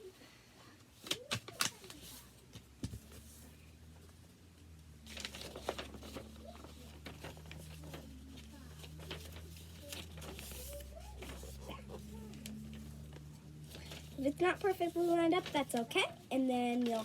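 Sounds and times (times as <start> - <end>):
low steady hum: 0.0 - 17.0
paper being folded: 1.0 - 2.3, 5.0 - 17.0.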